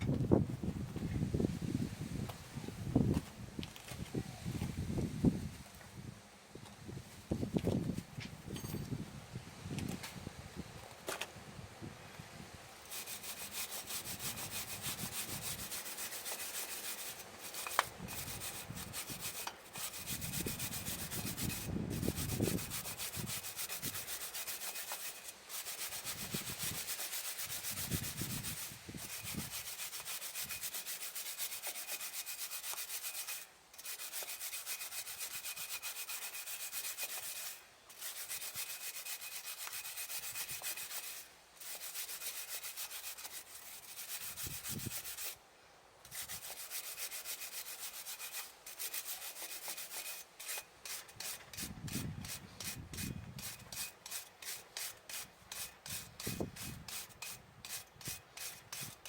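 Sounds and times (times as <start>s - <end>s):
abrasive tool scrubbing: 12.8s - 45.4s, 46.1s - 59.0s.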